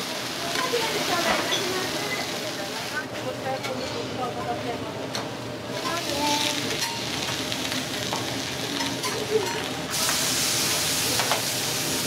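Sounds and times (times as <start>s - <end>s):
meat sizzling on a griddle: 0.0s - 3.1s, 5.7s - 12.0s.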